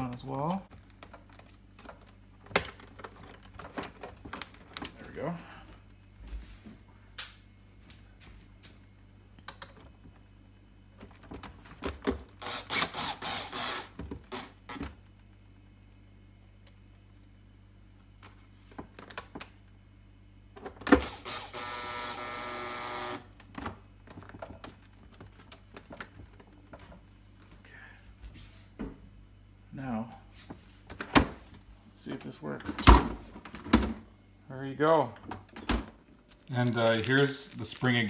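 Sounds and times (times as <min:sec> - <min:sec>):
buzzing hum: 0:19.9 - 0:23.5.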